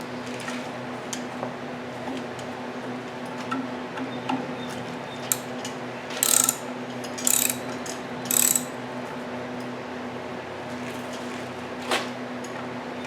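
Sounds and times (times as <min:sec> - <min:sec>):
ratchet wrench clicking: 0:06.2 - 0:07.7, 0:08.3 - 0:08.8.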